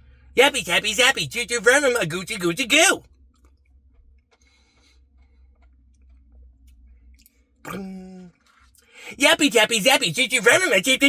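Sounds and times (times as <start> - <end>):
short vocal hum: 7.7 - 8.3.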